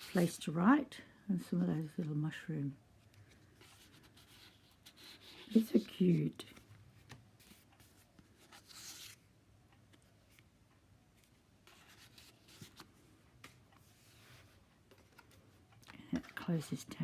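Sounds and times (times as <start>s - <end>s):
paper rustling: 0.0s - 0.4s, 3.1s - 9.3s, 11.2s - 17.0s.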